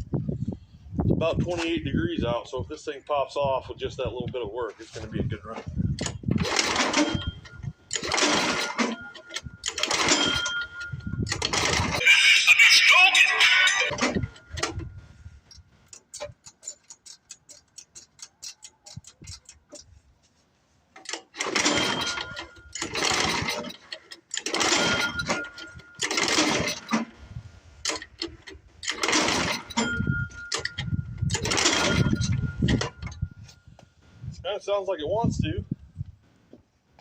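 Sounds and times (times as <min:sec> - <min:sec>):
small engine pull-start cranking: 0:06.0 - 0:12.0, 0:21.0 - 0:27.1, 0:27.8 - 0:33.1.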